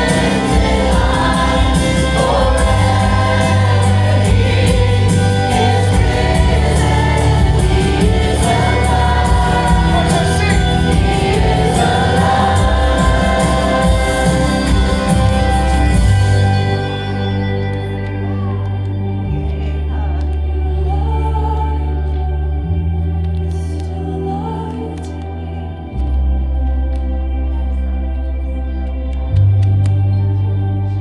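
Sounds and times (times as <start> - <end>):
choir singing gospel: 0.0 - 22.4
full band with steady beat: 0.0 - 27.7.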